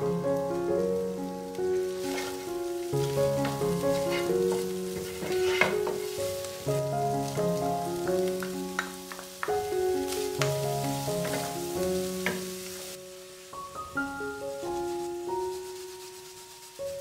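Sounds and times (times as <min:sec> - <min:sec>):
minced meat sizzling in a pan: 0:00.0 - 0:17.0
wooden spatula scraping: 0:01.4 - 0:13.0, 0:14.5 - 0:17.0
melody of held notes: 0:05.7 - 0:15.7.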